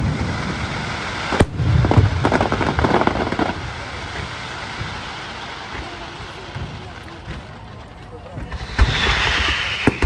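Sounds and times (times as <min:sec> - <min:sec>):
firework bang: 0:00.0 - 0:05.1, 0:08.4 - 0:10.0
crackling firework pops: 0:00.0 - 0:10.0
low rumble: 0:08.5 - 0:10.0.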